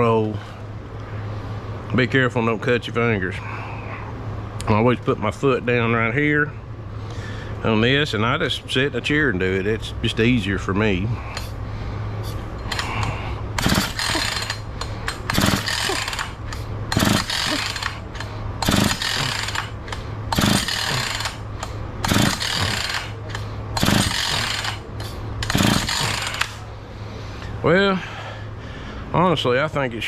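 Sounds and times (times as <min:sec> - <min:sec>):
chainsaw recoil starter pulls: 0:12.6 - 0:26.6.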